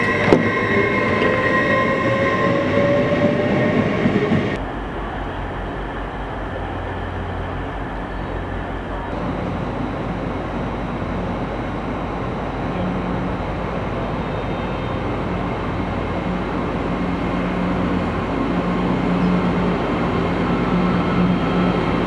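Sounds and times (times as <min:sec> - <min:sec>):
high squealing tones: 0:00.0 - 0:04.6, 0:09.1 - 0:22.0
rising whine: 0:00.0 - 0:04.6, 0:08.0 - 0:22.0
low locomotive rumble: 0:00.0 - 0:22.0
rail noise: 0:00.0 - 0:22.0.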